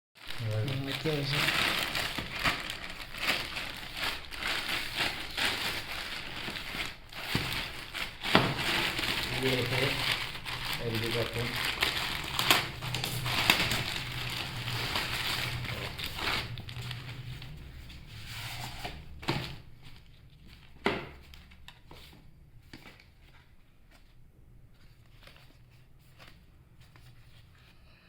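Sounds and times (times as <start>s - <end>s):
packaging crinkling and tearing: 0.2s - 21.9s.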